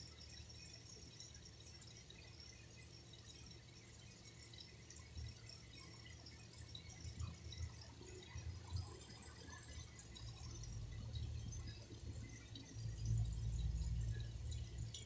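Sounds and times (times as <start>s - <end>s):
water dripping and trickling: 0.0s - 15.0s.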